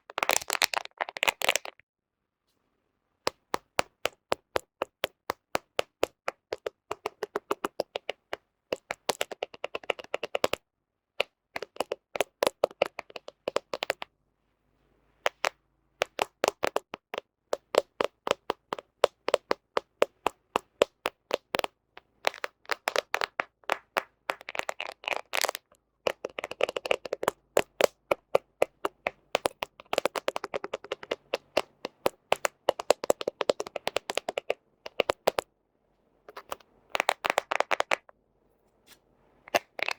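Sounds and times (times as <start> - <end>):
fingernails tapping on a phone: 3.3 - 10.6, 11.2 - 14.0, 15.3 - 35.4, 36.3 - 38.1.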